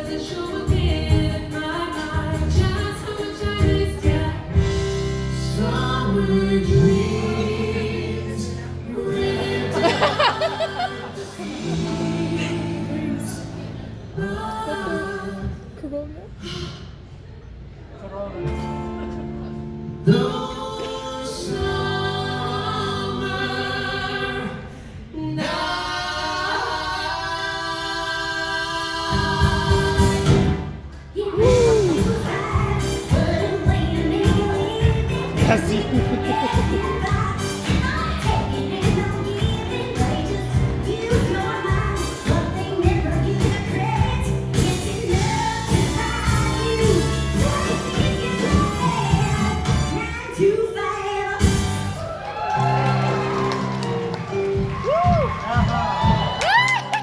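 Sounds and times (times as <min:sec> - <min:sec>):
live band playing pop song: 0:00.0 - 0:13.9, 0:28.9 - 0:52.2
group singing sustained harmony: 0:05.2 - 0:15.6, 0:20.1 - 0:30.7
steady drum beat: 0:31.4 - 0:50.0, 0:54.6 - 0:56.6.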